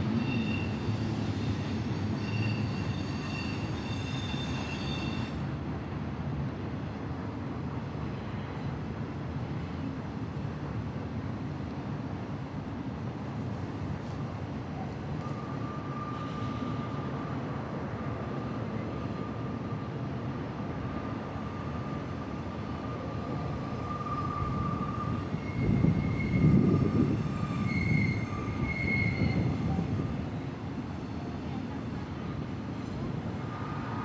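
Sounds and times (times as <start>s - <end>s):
wheel flanges squealing: 0.0s - 5.4s, 23.7s - 29.9s
freight train rumbling: 0.0s - 34.0s.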